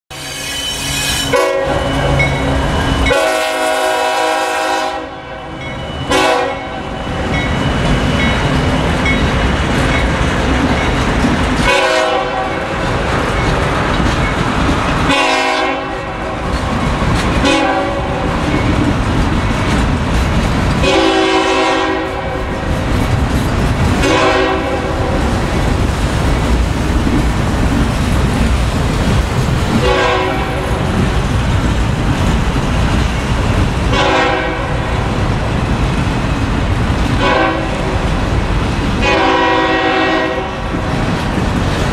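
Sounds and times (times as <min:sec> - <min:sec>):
locomotive horn blasts: 0:01.2 - 0:02.3, 0:03.0 - 0:06.9, 0:11.6 - 0:12.7, 0:15.1 - 0:16.4, 0:17.4 - 0:18.2, 0:20.8 - 0:22.5, 0:24.0 - 0:25.1, 0:29.8 - 0:30.8, 0:33.9 - 0:34.8, 0:37.2 - 0:37.9, 0:39.0 - 0:40.7
freight cars rumbling and clattering: 0:07.0 - 0:15.2, 0:16.0 - 0:21.1, 0:22.2 - 0:39.4, 0:40.3 - 0:41.9.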